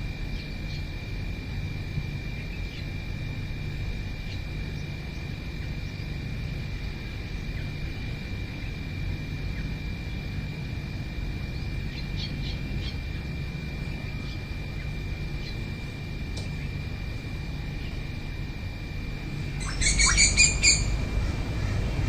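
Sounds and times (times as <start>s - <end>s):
faint bird chirps: 19.5s - 21.0s.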